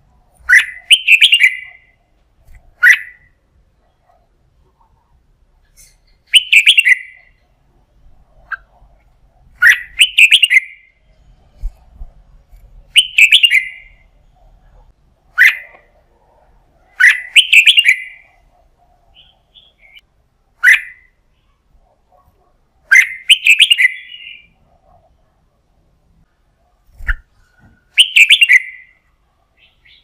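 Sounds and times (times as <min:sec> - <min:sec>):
bird warbled song phrases: 0:00.4 - 0:02.0, 0:02.7 - 0:03.3, 0:05.8 - 0:07.4, 0:09.6 - 0:11.1, 0:12.9 - 0:14.1, 0:15.3 - 0:15.9, 0:16.8 - 0:18.4, 0:19.0 - 0:21.6, 0:22.9 - 0:24.6, 0:27.9 - 0:30.0.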